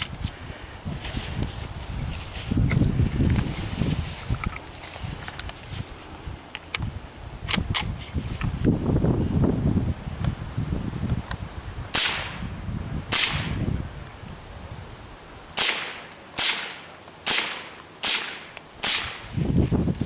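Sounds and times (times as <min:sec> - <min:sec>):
rifle shots: 0:11.9 - 0:12.4, 0:13.1 - 0:13.6, 0:15.6 - 0:19.2.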